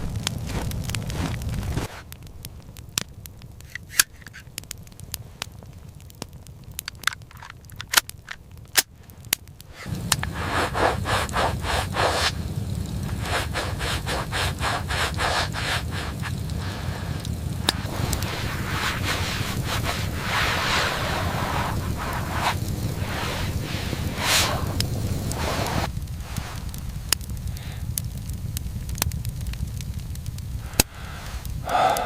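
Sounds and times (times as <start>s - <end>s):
crackling and scraping clicks: 0.0s - 31.7s
steady rushing noise: 9.6s - 27.2s, 30.5s - 32.0s.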